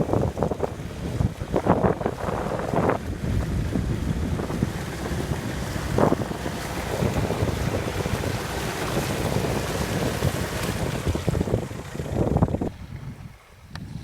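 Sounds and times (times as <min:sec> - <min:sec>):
off-road vehicle engine: 0:00.0 - 0:14.0
wind buffeting microphone: 0:00.0 - 0:14.0.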